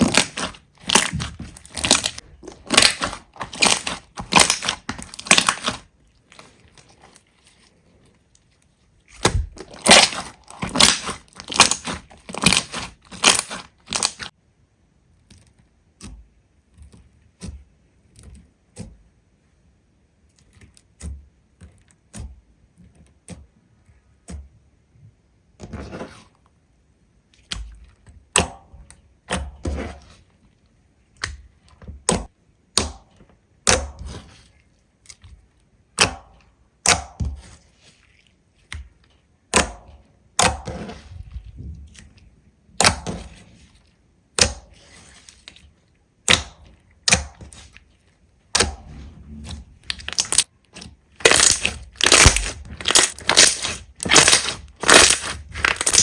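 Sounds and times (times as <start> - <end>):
slime crackling and popping: 0.0 - 6.8, 9.1 - 14.3, 48.5 - 56.0.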